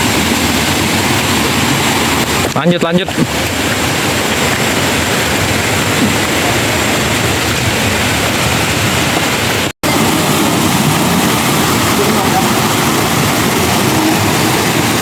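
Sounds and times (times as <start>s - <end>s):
loud rushing noise: 0.0s - 15.0s.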